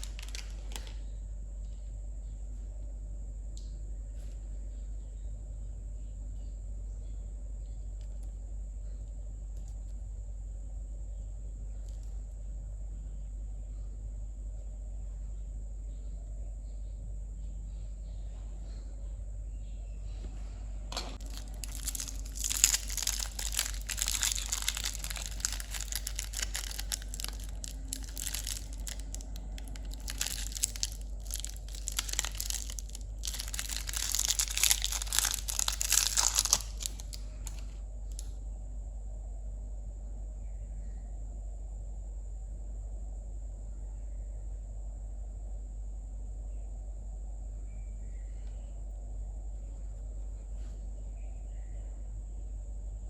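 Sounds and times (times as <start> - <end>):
candy wrappers crinkling: 0.0 - 1.0, 21.2 - 38.3.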